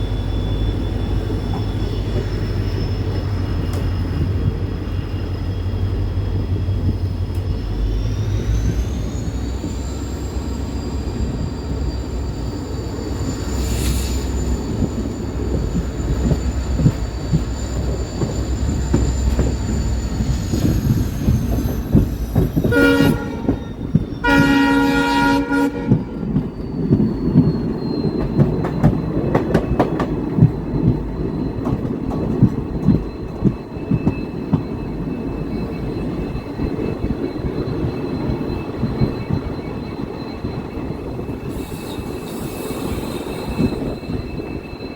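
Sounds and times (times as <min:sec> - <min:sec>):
train rumbling on rails: 0:00.0 - 0:44.9
locomotive horn: 0:22.7 - 0:23.6, 0:24.2 - 0:26.2.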